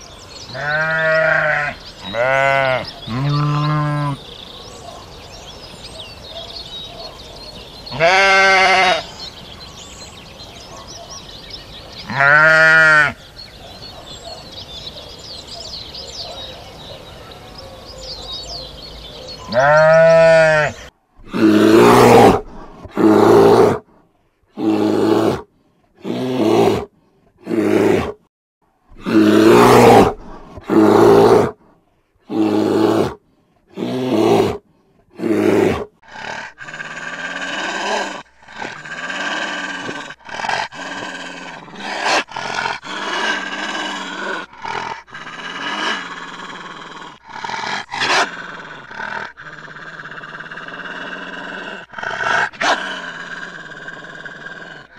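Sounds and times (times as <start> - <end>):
birds chirping faintly: 0.0 - 20.9
sheep bleating: 0.5 - 4.2, 7.9 - 9.1, 12.0 - 13.2, 19.5 - 22.0
bear growling: 19.5 - 23.9, 24.5 - 28.3, 28.9 - 31.6, 32.2 - 54.9.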